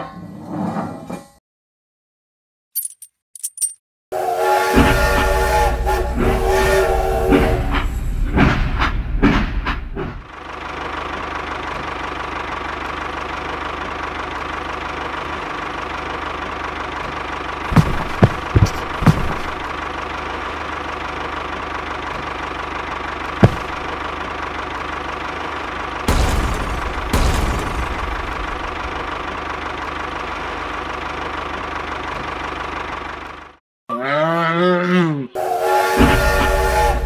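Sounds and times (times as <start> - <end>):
toy train whistle: 4.2 - 7.9, 35.4 - 37.0.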